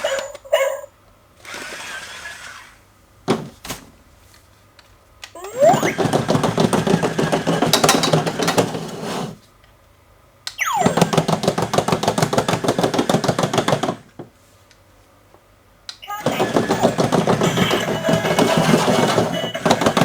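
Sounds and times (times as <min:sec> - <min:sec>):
toy robot motor and gears rattling: 0:00.0 - 0:02.8, 0:16.0 - 0:20.0.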